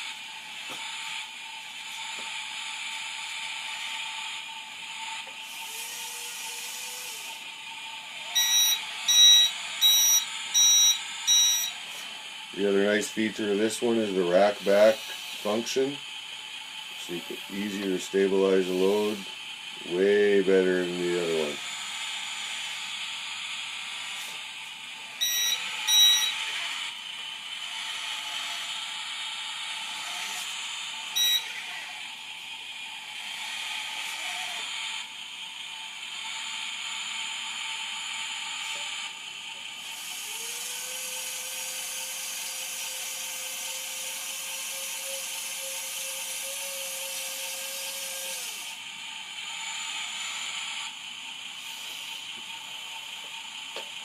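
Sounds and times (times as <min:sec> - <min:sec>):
electric motors whining: 0:00.0 - 0:54.0
electronic sound-module noise: 0:08.4 - 0:11.8, 0:25.2 - 0:26.6
short beeps: 0:08.4 - 0:11.8, 0:25.2 - 0:26.4, 0:31.2 - 0:31.5
long steady tone: 0:08.4 - 0:11.9, 0:25.2 - 0:26.6, 0:31.1 - 0:31.5.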